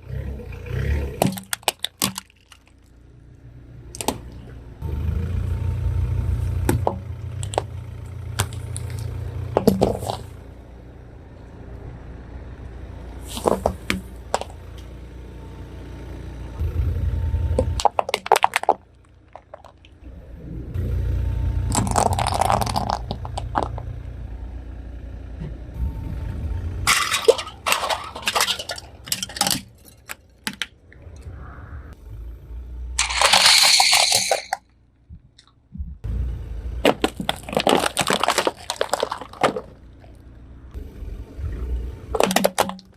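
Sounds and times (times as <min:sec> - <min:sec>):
engine and tyre rumble: 0:00.0 - 0:42.9
objects cracking under tyre: 0:01.0 - 0:03.0, 0:06.5 - 0:10.5, 0:13.2 - 0:14.9, 0:17.6 - 0:20.1, 0:21.6 - 0:24.0, 0:26.8 - 0:31.2, 0:36.8 - 0:40.4, 0:42.1 - 0:42.9.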